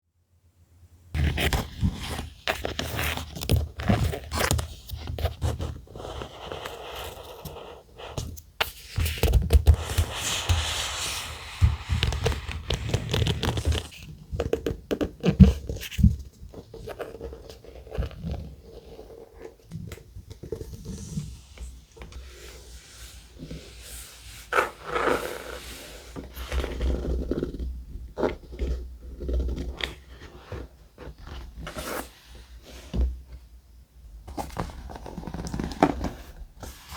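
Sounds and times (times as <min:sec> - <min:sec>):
paper rustling and scraping: 0:01.2 - 0:14.1, 0:20.4 - 0:27.2.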